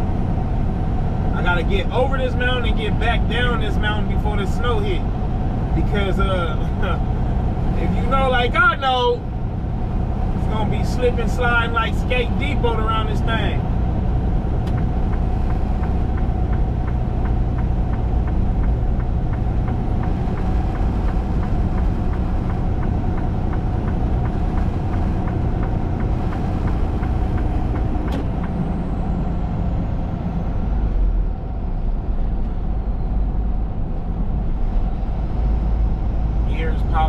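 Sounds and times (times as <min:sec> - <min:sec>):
truck engine and road noise: 0:00.0 - 0:37.0
regular ticking: 0:14.5 - 0:28.6.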